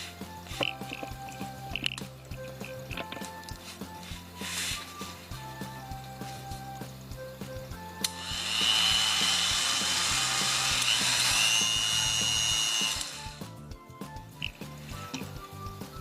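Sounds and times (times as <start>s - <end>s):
background music: 0.0s - 16.0s
rotary tool high-pitched whine: 8.0s - 13.4s.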